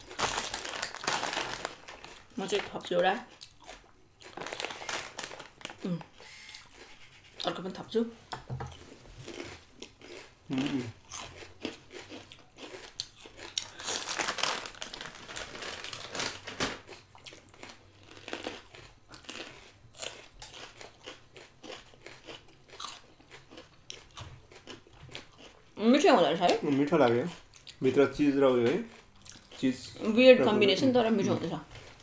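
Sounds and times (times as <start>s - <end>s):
crunchy biting and chewing: 8.7s - 25.6s.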